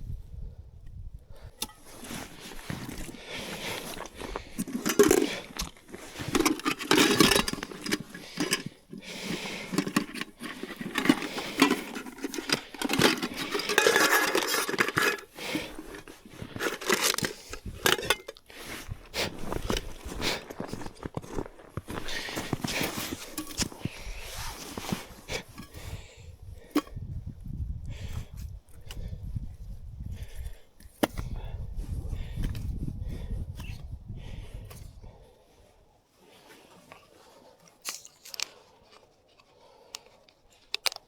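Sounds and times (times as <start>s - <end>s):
cookware scraping and clinking: 4.6s - 18.4s.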